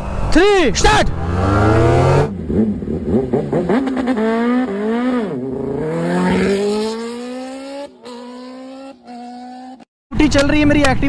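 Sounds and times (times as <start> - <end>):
engine revving and accelerating: 1.0 - 9.9.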